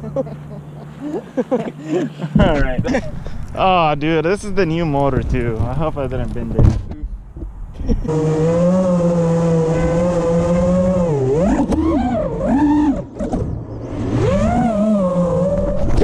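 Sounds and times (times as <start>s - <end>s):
quadcopter motors whining: 8.0s - 16.0s.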